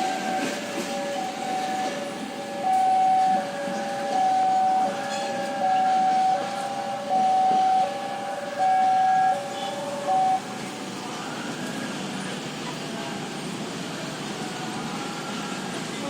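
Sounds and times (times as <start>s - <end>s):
two-tone warning signal: 0.0s - 10.5s
train rumble: 0.0s - 16.0s.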